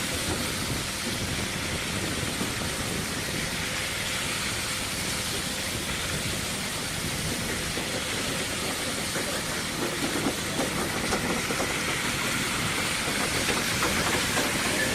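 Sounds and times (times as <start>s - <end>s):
rushing hiss: 0.0s - 14.9s.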